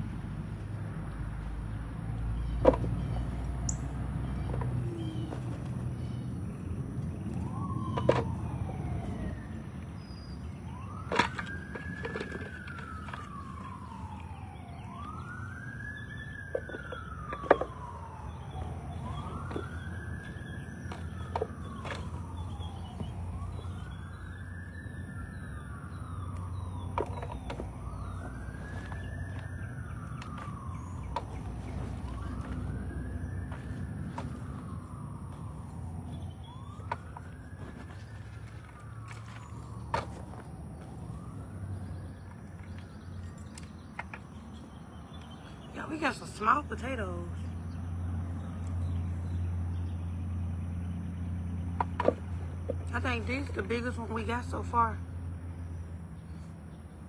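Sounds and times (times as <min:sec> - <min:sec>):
emergency siren wailing: 0:01.4 - 0:55.9.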